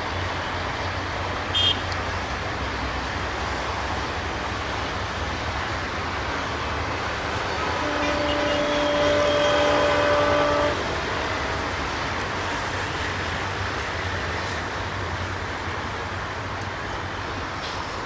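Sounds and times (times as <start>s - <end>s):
train rumbling on track: 0.0s - 18.0s
locomotive horn blast: 1.5s - 1.9s, 7.6s - 11.0s.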